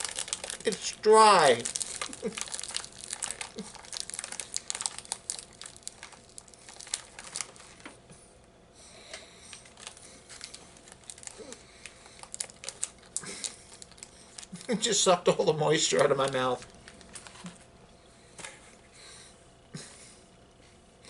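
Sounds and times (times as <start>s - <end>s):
person chewing cookie: 0.0s - 7.8s, 9.2s - 14.7s.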